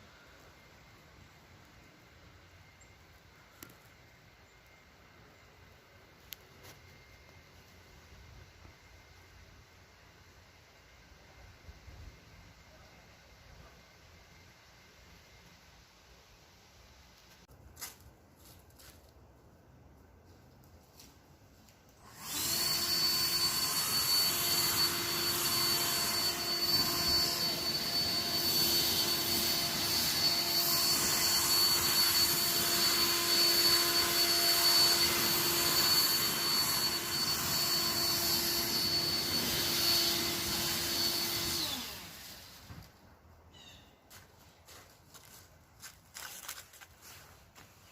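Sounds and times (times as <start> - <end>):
motor-driven blower running: 22.0 - 43.0.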